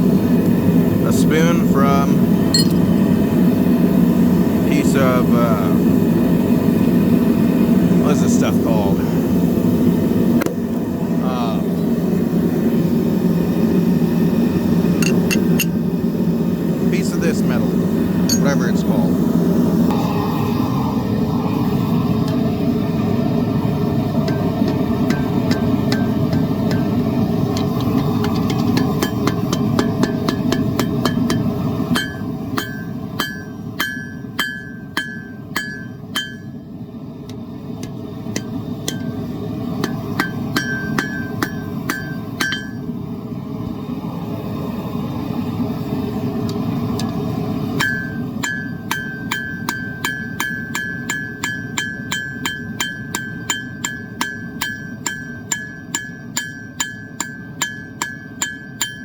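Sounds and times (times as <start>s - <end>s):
forge burner roar: 0.0s - 59.0s
hammer ringing on anvil: 2.6s - 2.9s, 18.3s - 18.8s, 28.8s - 36.6s, 39.8s - 42.8s, 47.8s - 59.0s.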